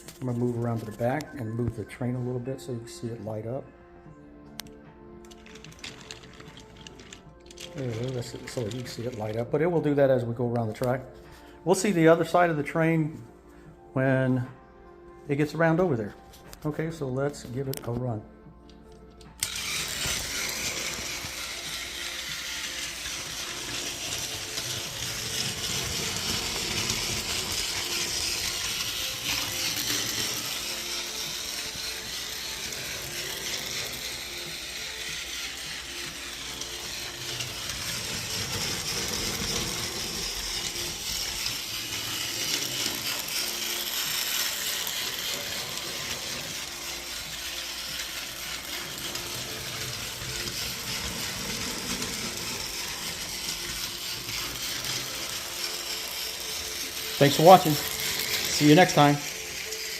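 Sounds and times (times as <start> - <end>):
toy train motor whirring: 5.2 - 9.4, 18.8 - 59.9.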